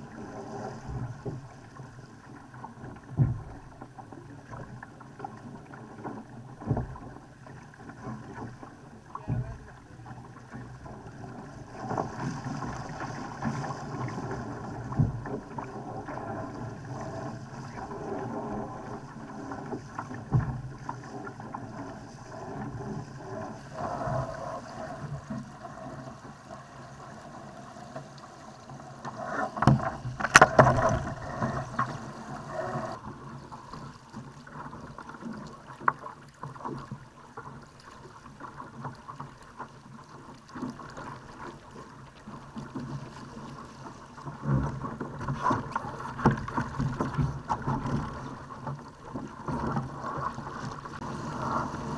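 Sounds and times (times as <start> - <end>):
water rushing along a hull: 0.0 - 51.9
hull knocking on waves: 2.6 - 25.6, 29.6 - 33.9.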